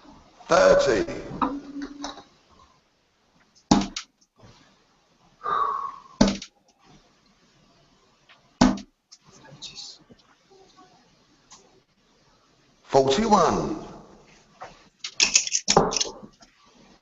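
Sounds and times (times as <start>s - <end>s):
darts hitting dartboard: 3.7s - 4.0s, 6.2s - 6.5s, 8.6s - 8.9s
short breathy sound: 5.4s - 6.2s.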